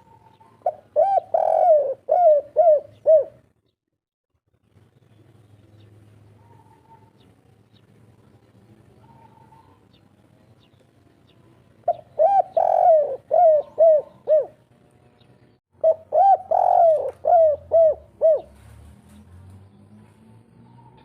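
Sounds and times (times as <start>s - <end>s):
dove cooing: 0.0s - 3.5s, 9.0s - 9.9s, 11.8s - 14.6s, 15.8s - 18.7s.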